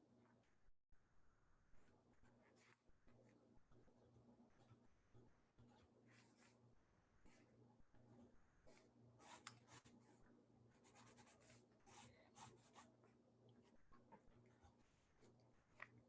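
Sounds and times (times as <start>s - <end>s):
pen scratching on paper: 1.8s - 3.4s, 5.6s - 6.6s, 7.2s - 15.8s.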